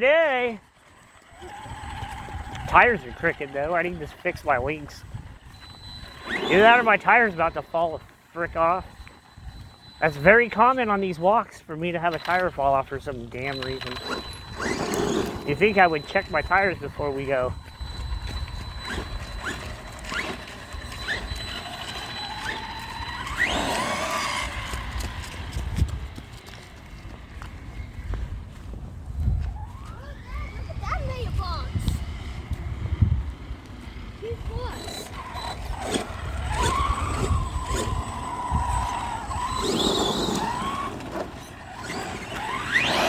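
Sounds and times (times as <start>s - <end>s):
tyres skidding on ground: 0.0s - 27.9s, 33.4s - 43.0s
electric motor whining: 0.6s - 43.0s.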